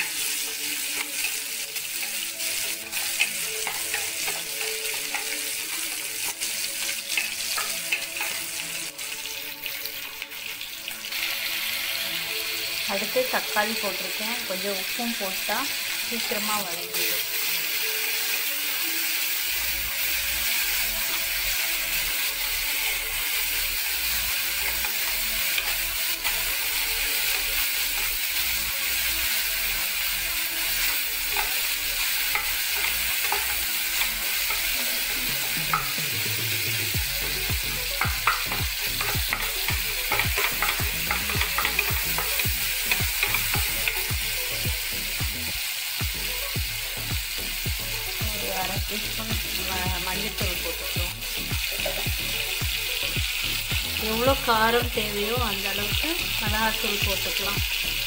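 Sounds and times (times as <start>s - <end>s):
vegetables sizzling in hot oil: 0.0s - 58.0s
wooden spoon scraping a pan: 30.8s - 36.0s, 38.2s - 44.0s.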